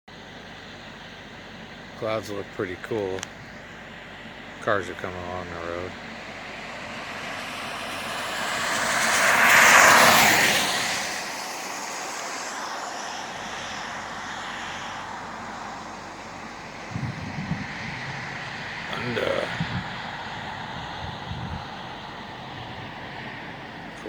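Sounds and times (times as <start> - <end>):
traffic rush: 0.1 - 24.0
car driving past: 3.8 - 24.0.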